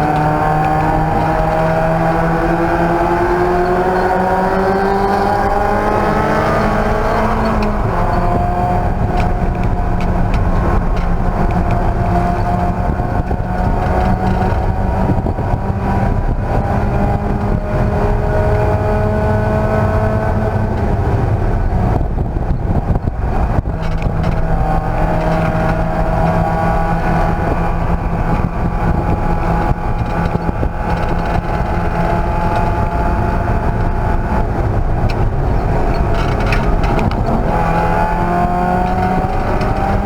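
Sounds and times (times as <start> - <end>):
race car engine running hard: 0.0 - 40.0
road and wind rumble: 0.0 - 40.0.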